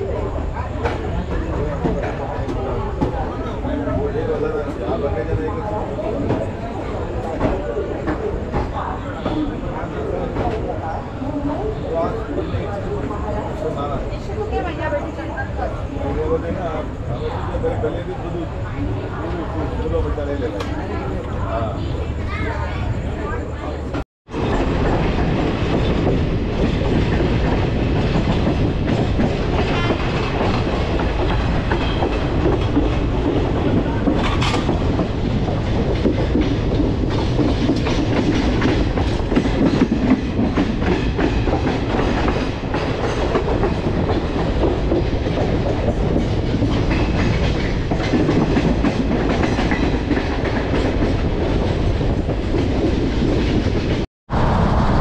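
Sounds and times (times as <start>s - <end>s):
train rumbling on rails: 0.0s - 55.0s
wheels clattering over track: 24.3s - 54.0s.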